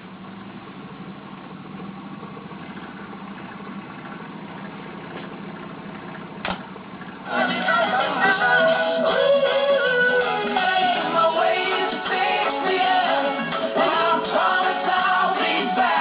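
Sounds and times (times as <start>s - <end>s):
stirling engine humming: 0.0s - 16.0s
music: 7.2s - 16.0s.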